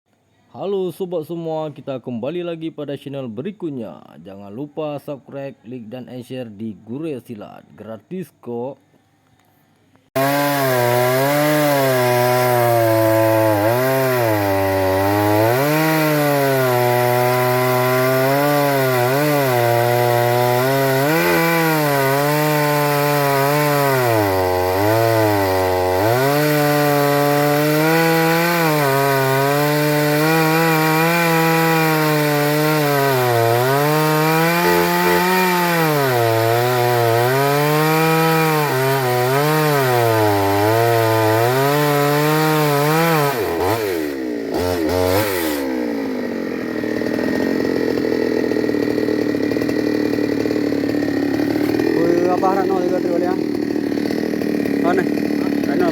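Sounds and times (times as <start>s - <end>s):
chainsaw cutting wood: 10.0s - 55.9s.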